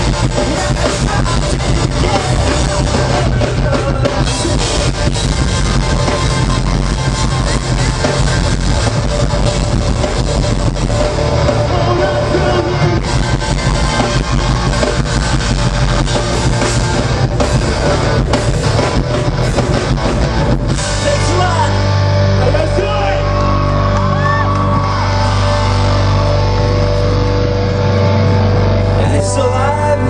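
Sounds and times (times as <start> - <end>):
person singing: 0.0 - 5.2, 11.4 - 14.9, 28.7 - 30.0
drums: 0.0 - 30.0
live rock band playing: 0.0 - 30.0
electric guitar chord ringing: 5.3 - 30.0.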